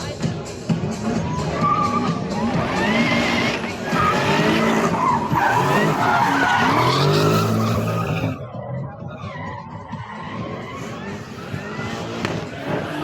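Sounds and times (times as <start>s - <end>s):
car engine revving: 0.1s - 13.0s
tyres squealing: 1.2s - 8.4s.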